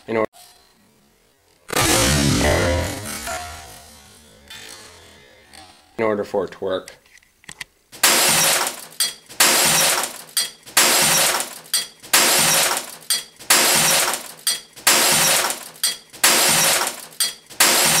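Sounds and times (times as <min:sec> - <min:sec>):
glass shattering: 0:08.0 - 0:18.0.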